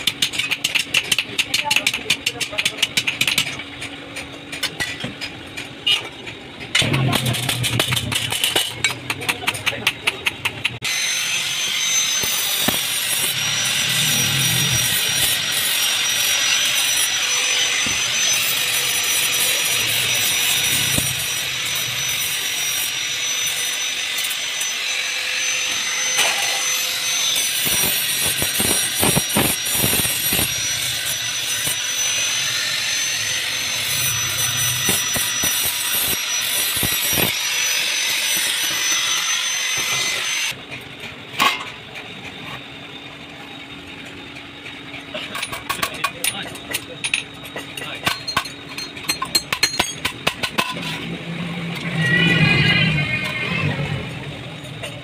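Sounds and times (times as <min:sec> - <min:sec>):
power tool whining on steel: 0:10.8 - 0:40.6, 0:45.4 - 0:55.0.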